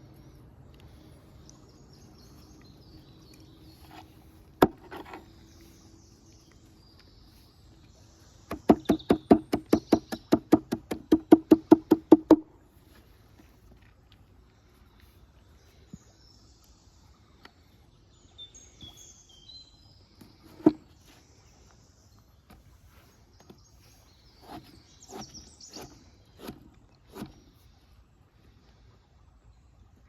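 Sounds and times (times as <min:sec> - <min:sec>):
knife chopping on wooden board: 0:08.5 - 0:12.4.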